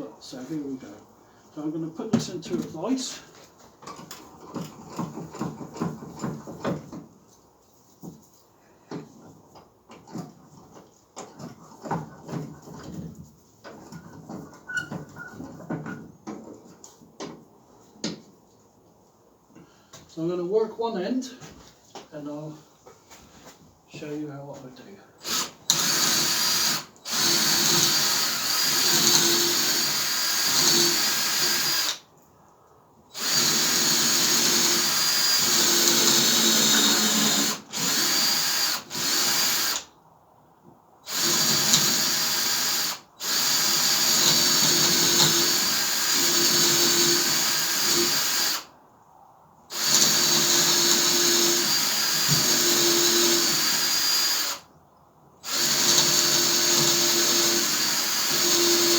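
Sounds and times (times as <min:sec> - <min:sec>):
electric drill boring into wood: 0:25.2 - 0:32.0, 0:33.1 - 0:39.9, 0:41.1 - 0:48.7, 0:49.7 - 0:54.7, 0:55.4 - 0:58.9.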